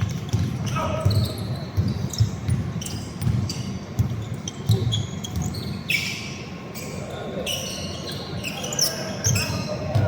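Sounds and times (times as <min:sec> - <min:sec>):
basketball bouncing on court: 0:00.0 - 0:05.8, 0:09.3 - 0:10.0
sneaker squeaks: 0:00.0 - 0:10.0.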